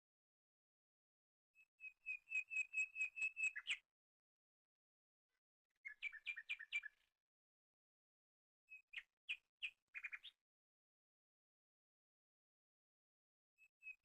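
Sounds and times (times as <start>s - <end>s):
songbird whistling: 1.8s - 3.8s, 5.8s - 7.0s, 8.7s - 10.3s.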